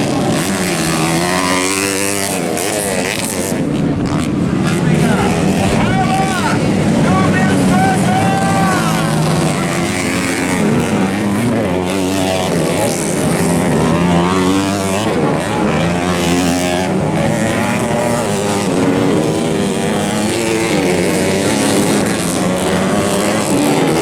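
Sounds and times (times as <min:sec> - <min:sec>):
motorcycle engines revving: 0:00.0 - 0:24.0.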